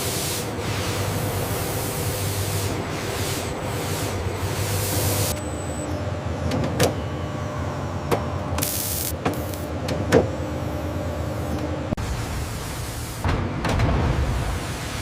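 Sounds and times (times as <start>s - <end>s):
hiss of spray or air: 0.0s - 5.3s
machinery humming: 0.0s - 13.6s.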